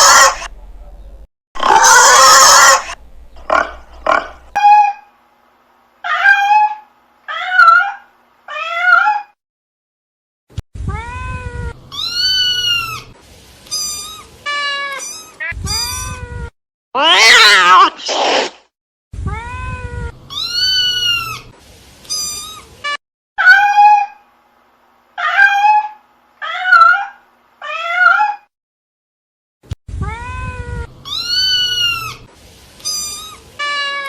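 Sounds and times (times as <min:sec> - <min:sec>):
cat meowing: 0:14.0 - 0:18.0, 0:25.2 - 0:28.5.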